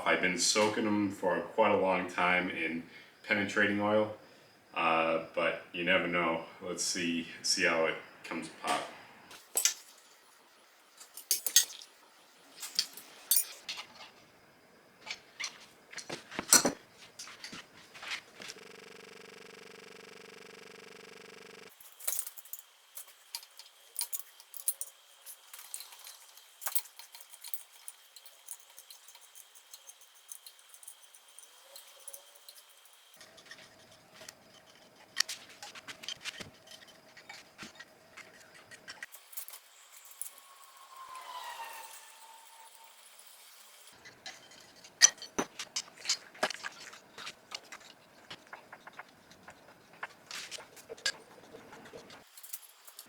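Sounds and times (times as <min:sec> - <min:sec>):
metallic clinks of hand tools: 0:21.8 - 0:33.2.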